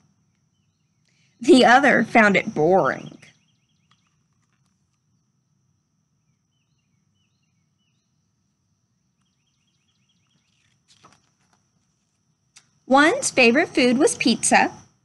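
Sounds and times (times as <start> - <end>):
bird chirps: 3.1 - 4.3, 9.2 - 10.8.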